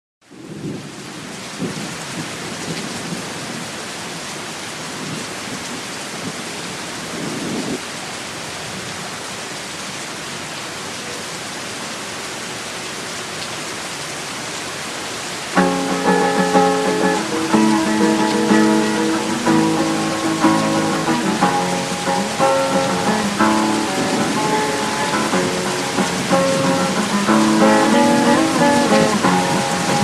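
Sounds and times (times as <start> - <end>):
heavy rain: 0.2 - 30.0
thunder rumbling: 15.6 - 30.0.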